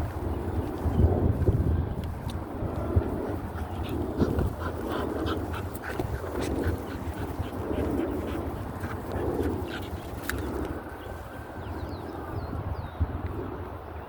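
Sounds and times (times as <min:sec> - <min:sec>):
wind rumbling on microphone: 0:00.0 - 0:14.0
dog panting and whining: 0:03.5 - 0:10.7.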